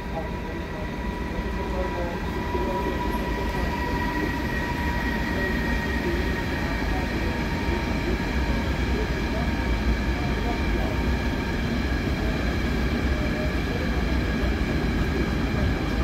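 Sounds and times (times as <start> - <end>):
electric locomotive passing: 0.0 - 16.0.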